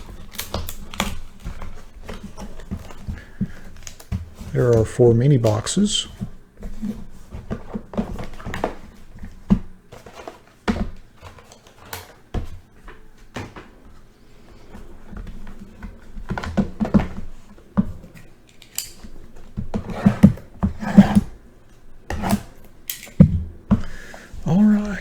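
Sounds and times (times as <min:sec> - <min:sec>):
cardboard boxes knocking and tapping: 0:00.0 - 0:11.5, 0:14.8 - 0:18.1, 0:19.4 - 0:21.4.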